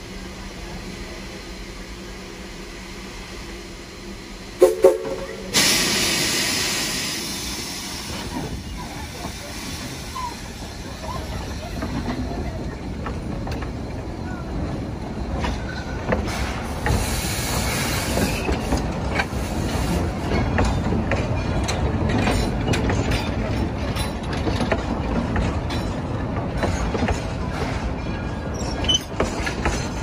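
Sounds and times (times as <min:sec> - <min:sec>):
train wheels rumbling on rails: 0:00.0 - 0:30.0
steam hiss: 0:03.0 - 0:11.7, 0:16.2 - 0:20.2.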